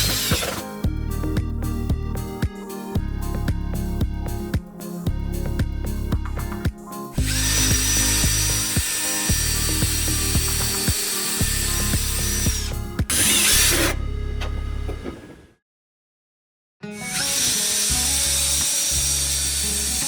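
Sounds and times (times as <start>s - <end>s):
power tool whining: 0.0s - 0.8s, 7.2s - 15.4s, 17.0s - 20.0s
background music: 0.0s - 15.1s.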